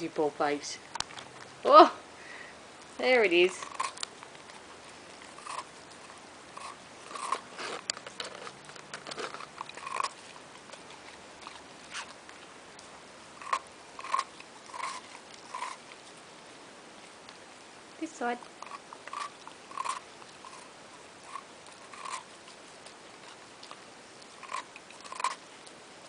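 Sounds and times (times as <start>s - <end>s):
dog crunching ice: 3.3s - 16.3s, 18.4s - 25.8s.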